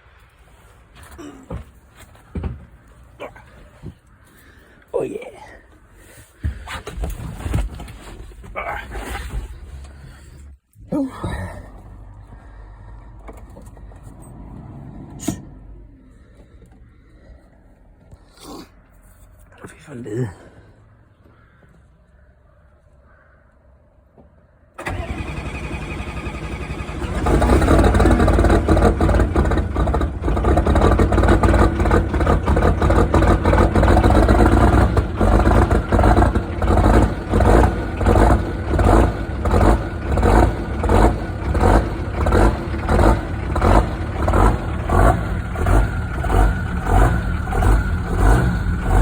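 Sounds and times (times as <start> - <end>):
diesel engine running loudly: 24.8 - 49.0
starter motor cranking: 24.8 - 49.0.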